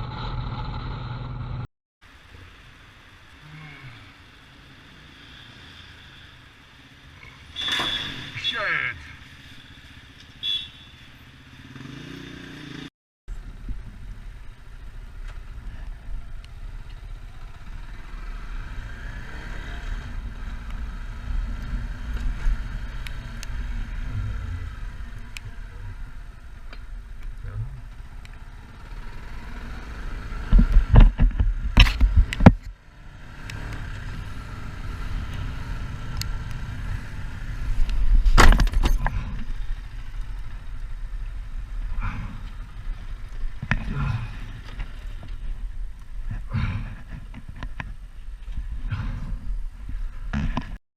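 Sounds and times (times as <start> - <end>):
motorcycle engine low rumble: 0.0 - 1.7, 9.2 - 50.8
wind noise: 30.4 - 32.7.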